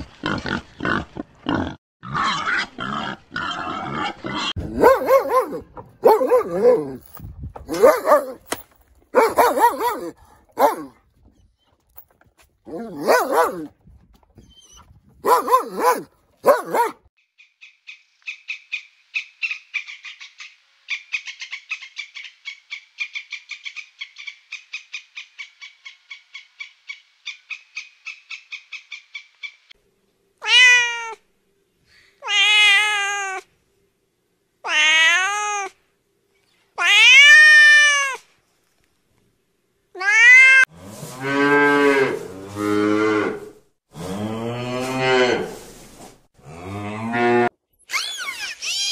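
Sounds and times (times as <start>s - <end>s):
puppy barking: 4.7s - 7.0s, 7.7s - 8.4s, 9.2s - 11.0s, 12.7s - 13.7s, 15.2s - 17.1s
cat meowing: 30.4s - 31.2s, 32.2s - 33.5s, 34.7s - 35.8s, 36.8s - 38.2s, 40.0s - 40.7s.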